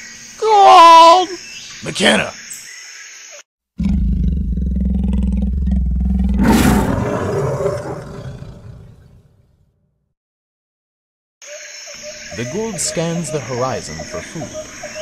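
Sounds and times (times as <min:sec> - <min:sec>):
big cat roaring: 0:03.8 - 0:09.4.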